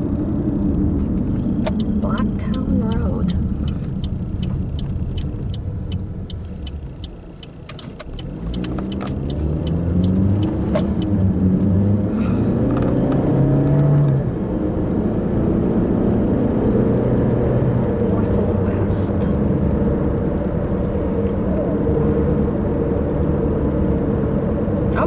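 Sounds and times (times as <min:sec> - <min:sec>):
car engine accelerating: 0:00.0 - 0:25.0
car turn signal ticking: 0:00.4 - 0:11.8.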